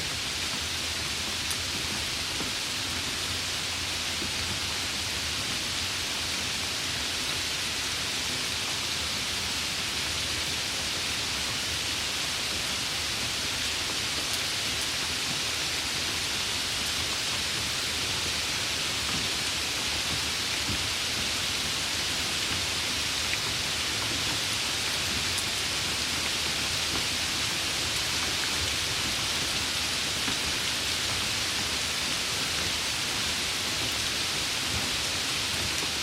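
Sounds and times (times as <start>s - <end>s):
steady rain: 0.0s - 36.0s.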